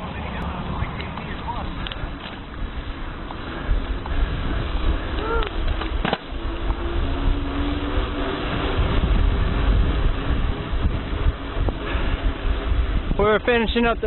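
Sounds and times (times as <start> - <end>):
steady low rumble: 0.0 - 14.0
wind buffeting microphone: 0.0 - 14.0.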